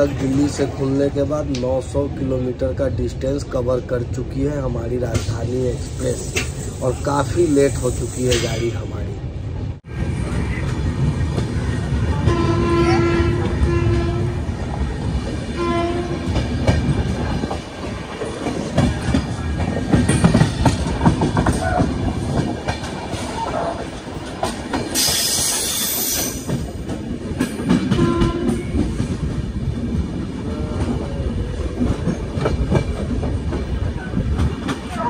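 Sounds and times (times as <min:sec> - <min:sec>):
rolling and wind noise: 0:00.0 - 0:35.0
train horn: 0:12.2 - 0:14.4, 0:15.6 - 0:16.2, 0:27.9 - 0:28.7
wheels clicking over rail joints: 0:15.9 - 0:31.0.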